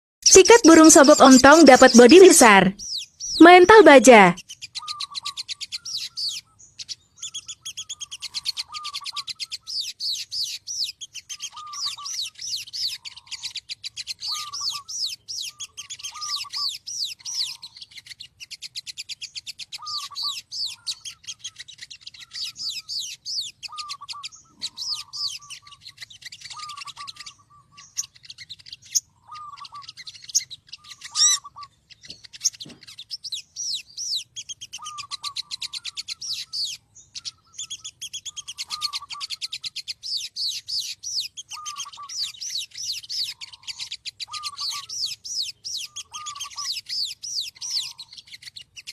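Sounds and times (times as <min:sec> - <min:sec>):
lower bird call: 0:00.2 - 0:18.2, 0:18.9 - 0:48.9
rapid high bird chirps: 0:00.2 - 0:48.9.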